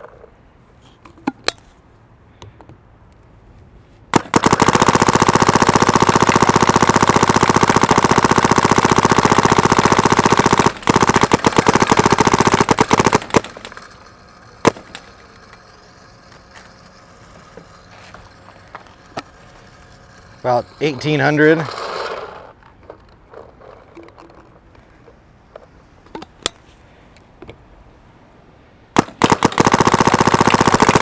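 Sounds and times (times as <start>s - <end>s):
paintball marker firing: 4.1s - 20.0s, 29.0s - 31.0s.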